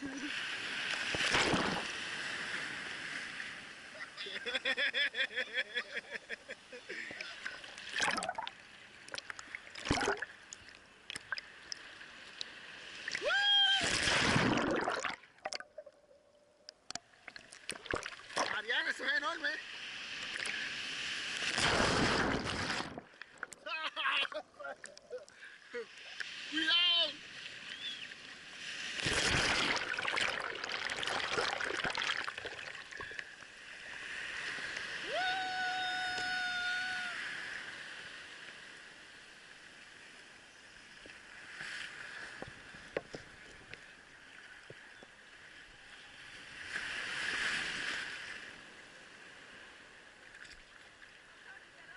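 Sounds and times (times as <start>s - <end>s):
sea water splashing and sloshing: 0.0s - 4.2s, 6.7s - 15.8s, 17.0s - 23.6s, 27.2s - 35.1s, 37.2s - 51.4s
high voice crying out: 13.2s - 14.0s, 35.0s - 37.3s.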